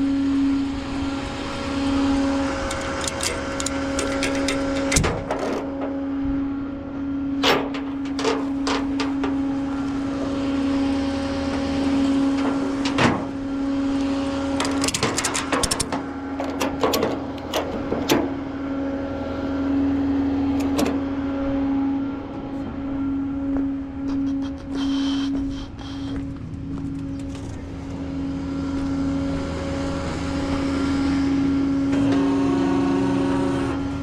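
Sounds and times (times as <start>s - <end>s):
machine humming: 0.0s - 34.0s
metallic clicks and clanks: 2.6s - 6.0s, 7.4s - 9.4s, 14.6s - 18.3s.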